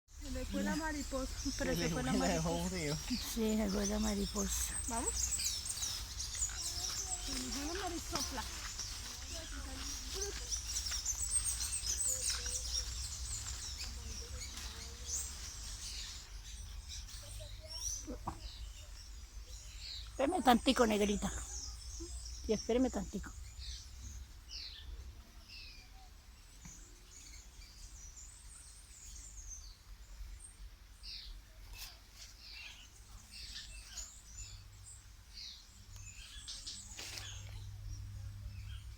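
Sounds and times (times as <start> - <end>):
low rumble of wind: 0.1 - 20.2, 32.4 - 38.9
wild birds chirping: 0.1 - 38.9.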